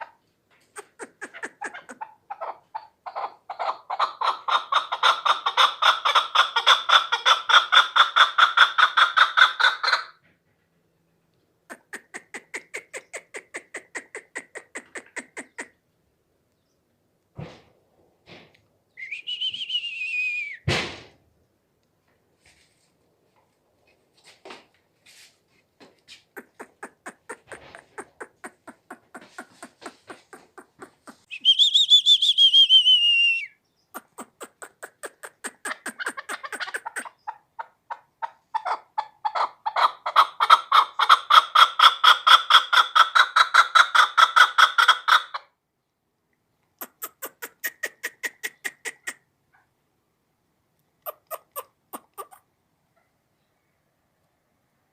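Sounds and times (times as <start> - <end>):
partridge clucking: 26.3 - 31.3.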